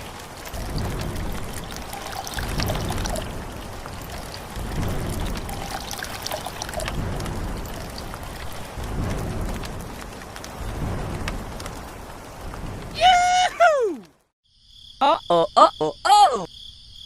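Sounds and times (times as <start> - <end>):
water pouring and trickling: 0.0 - 13.4.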